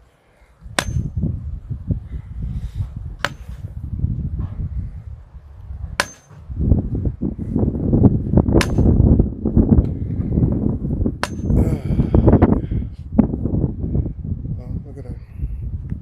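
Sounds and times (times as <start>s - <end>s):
wind buffeting microphone: 0.6s - 16.0s
hammer striking steel pipe: 0.8s - 1.2s, 6.0s - 6.4s, 8.6s - 9.0s, 11.2s - 11.6s.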